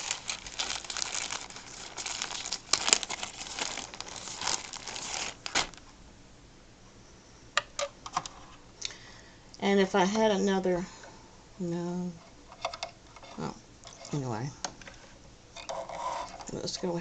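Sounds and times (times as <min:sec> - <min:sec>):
wrapping crinkling and rustling: 0:00.0 - 0:05.9.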